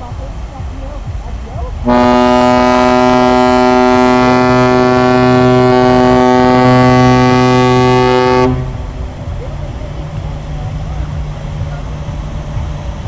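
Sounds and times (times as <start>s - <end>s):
ship horn blast: 1.8s - 9.4s.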